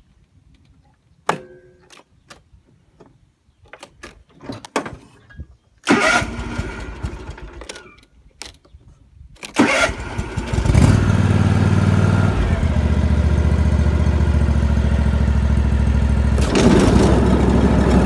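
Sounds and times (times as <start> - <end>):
lawn mower engine firing: 5.8 - 8.0, 9.4 - 18.0.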